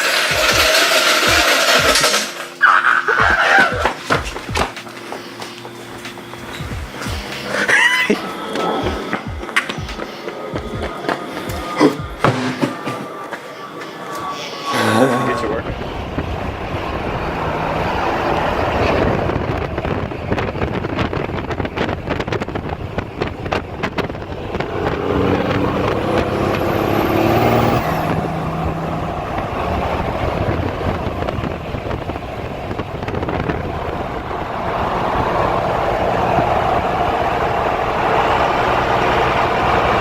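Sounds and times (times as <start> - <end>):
rapid rattle of clicks: 0.0 - 2.6
vehicle engine running: 0.0 - 13.3, 14.4 - 40.0.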